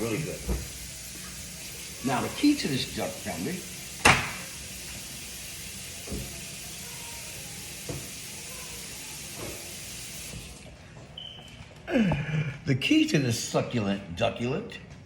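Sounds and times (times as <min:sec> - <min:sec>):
tap water running: 0:00.0 - 0:10.7.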